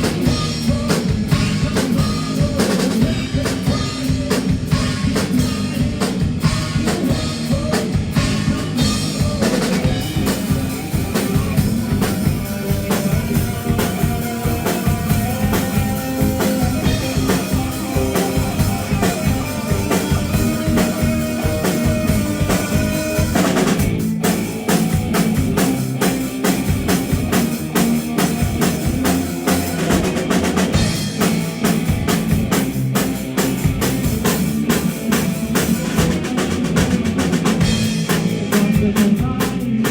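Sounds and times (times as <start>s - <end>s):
live band playing instrumental: 0.0s - 39.9s.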